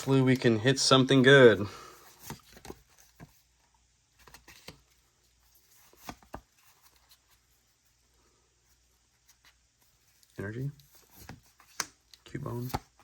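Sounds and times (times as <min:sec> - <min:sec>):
handling cards and pack: 0:09.2 - 0:13.0.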